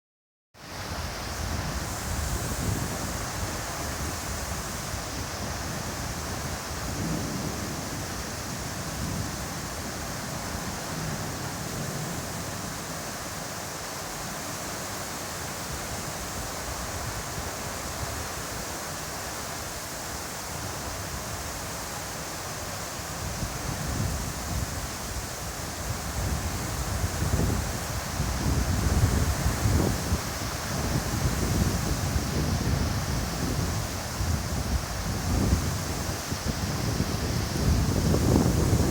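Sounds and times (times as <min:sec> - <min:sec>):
heavy rain hissing: 0:00.6 - 0:38.9
wind buffeting microphone: 0:00.8 - 0:13.1, 0:23.0 - 0:38.9.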